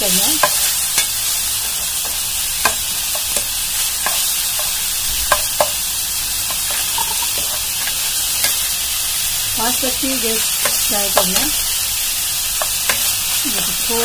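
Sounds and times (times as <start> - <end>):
onions sizzling in a frying pan: 0.0 - 14.0
spatula scraping a pan: 6.5 - 8.8.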